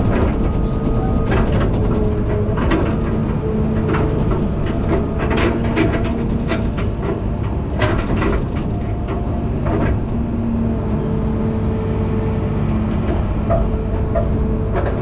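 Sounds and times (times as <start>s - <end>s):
baler clanks and rattles: 0.0s - 10.4s
tractor engine under load: 0.0s - 15.0s.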